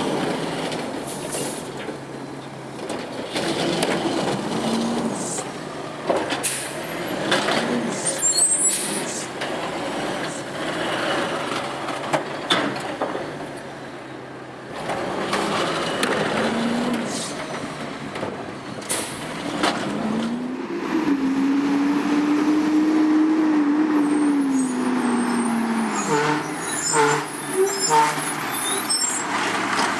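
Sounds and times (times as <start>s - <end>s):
garbage truck diesel engine revving: 14.6s - 18.1s, 18.9s - 29.9s.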